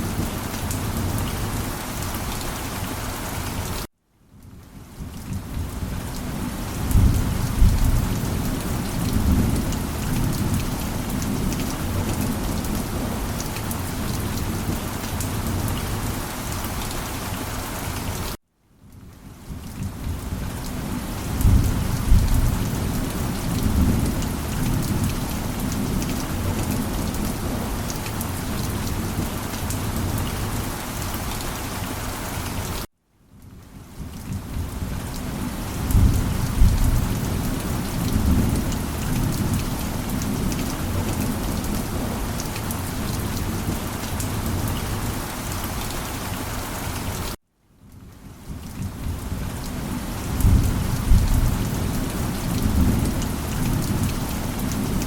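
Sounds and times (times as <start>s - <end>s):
heavy rain: 0.0s - 55.0s
rolling thunder: 6.8s - 12.8s, 21.3s - 27.6s, 35.8s - 42.2s, 50.3s - 55.0s.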